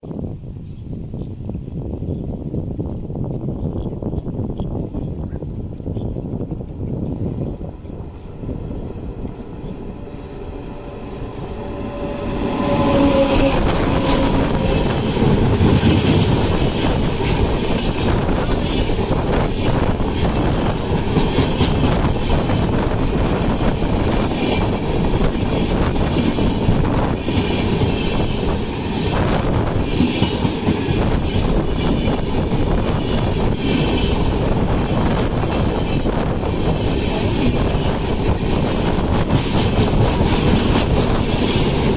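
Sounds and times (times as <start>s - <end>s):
train wheels clattering on rails: 5.2s - 41.9s.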